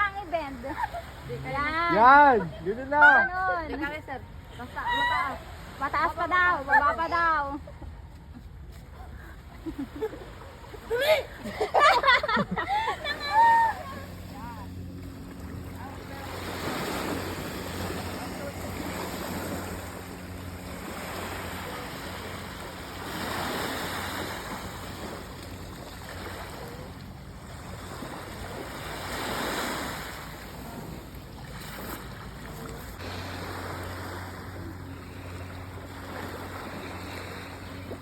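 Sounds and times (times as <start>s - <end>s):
steady low hum: 0.0s - 38.0s
sea waves washing onto beach: 8.9s - 38.0s.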